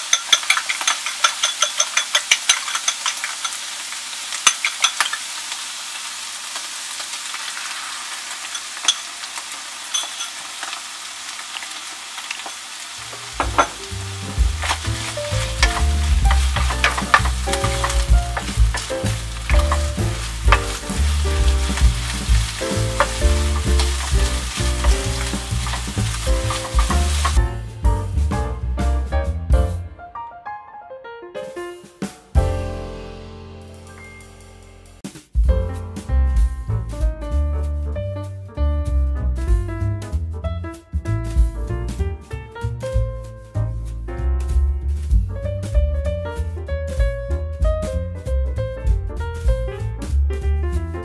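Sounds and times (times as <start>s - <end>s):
wooden spatula stirring: 0.0s - 3.6s, 13.1s - 27.4s
egg sizzling in a frying pan: 0.0s - 27.6s
background music with bass: 13.1s - 30.0s, 32.3s - 51.0s.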